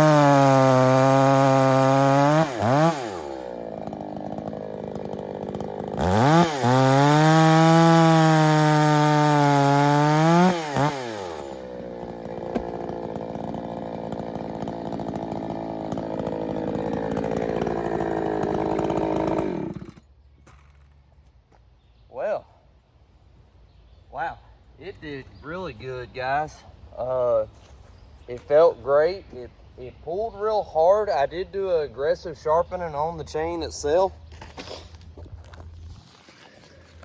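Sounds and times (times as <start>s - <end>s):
chainsaw running: 0.0s - 20.1s.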